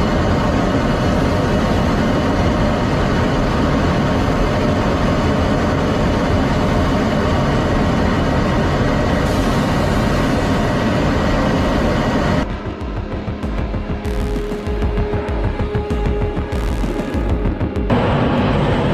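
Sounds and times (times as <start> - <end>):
jet engine roar: 0.0 - 18.9.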